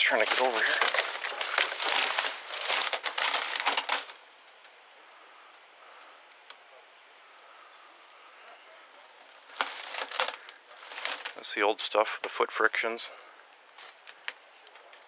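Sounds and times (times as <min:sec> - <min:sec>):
dry brush crunching underfoot: 0:00.0 - 0:04.2, 0:09.1 - 0:11.5
faint rustles: 0:00.0 - 0:06.5, 0:07.2 - 0:11.5.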